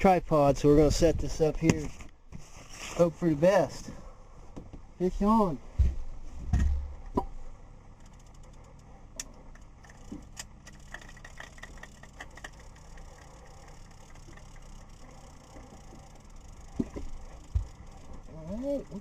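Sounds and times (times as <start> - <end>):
electric trolling motor humming: 7.6 - 19.0
fishing reel clicking: 8.0 - 8.9, 9.8 - 19.0.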